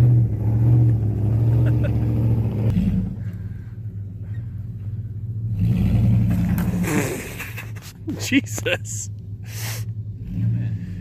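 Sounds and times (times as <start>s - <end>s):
vehicle engine revving hard: 5.5s - 7.3s.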